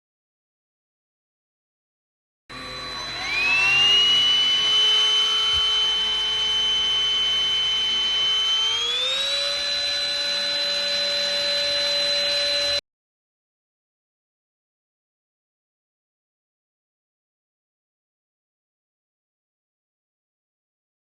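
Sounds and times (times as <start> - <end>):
vacuum cleaner motor whining: 2.5 - 12.8.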